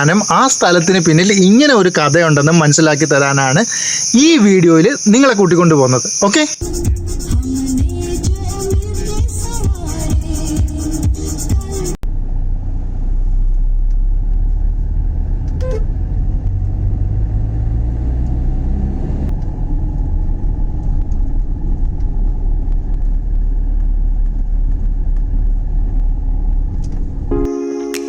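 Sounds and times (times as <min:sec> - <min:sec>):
vehicle engine and road rumble: 0:06.6 - 0:27.5
vehicle horn toot: 0:15.6 - 0:16.0.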